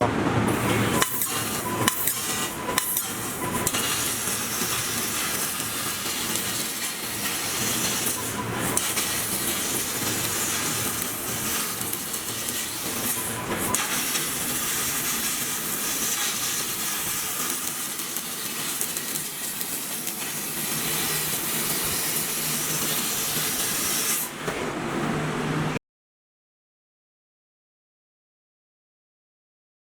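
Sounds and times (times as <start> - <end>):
laser cutter hissing: 0.5 - 24.4.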